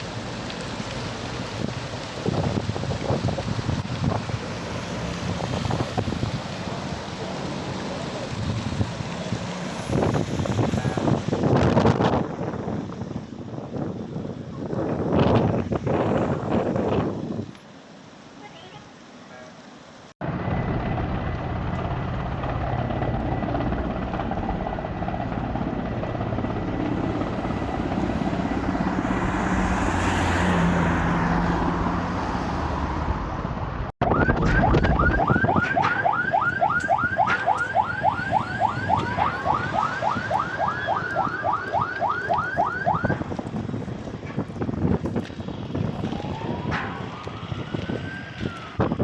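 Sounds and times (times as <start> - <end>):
steady rumbling roar: 20.2 - 49.0
emergency siren yelping: 34.0 - 43.4, 45.7 - 49.0.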